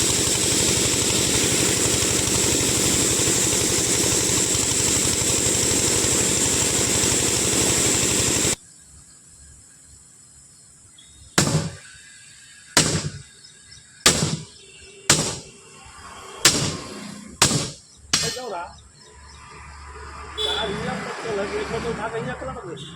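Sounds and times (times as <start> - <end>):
engine running: 0.0 - 8.6
hammer striking steel wheel rim: 11.4 - 11.8, 15.1 - 15.5, 16.5 - 18.5.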